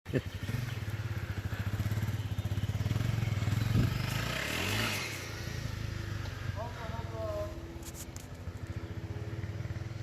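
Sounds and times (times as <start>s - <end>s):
dirt bike engine running: 0.1s - 7.2s.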